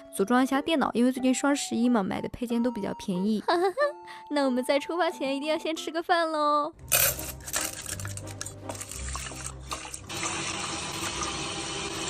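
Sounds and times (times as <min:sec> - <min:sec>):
clatter of handled objects: 0:06.9 - 0:09.5
water running from a tap: 0:07.8 - 0:12.0.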